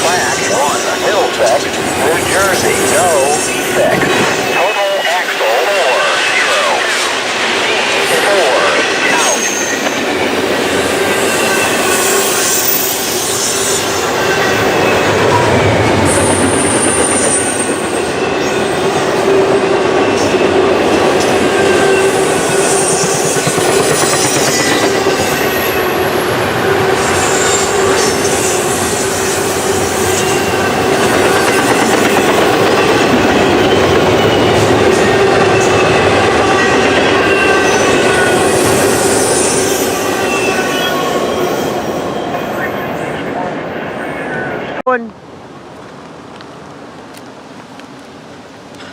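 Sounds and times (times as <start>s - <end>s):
freight train cars rolling: 0.0s - 44.6s
train wheel squeal: 7.6s - 43.2s.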